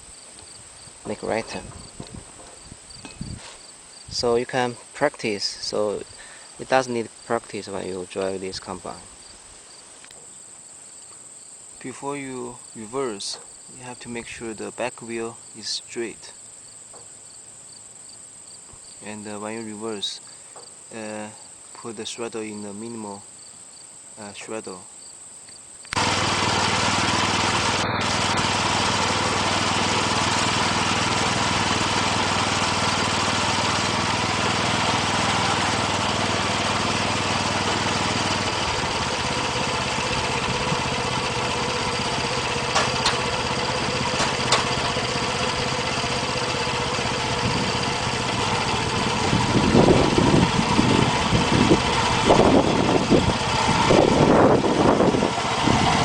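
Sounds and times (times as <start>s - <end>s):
machine rumbling and knocking: 1.0s - 3.4s, 26.0s - 56.0s
small gasoline engine running: 1.1s - 1.7s, 25.9s - 56.0s.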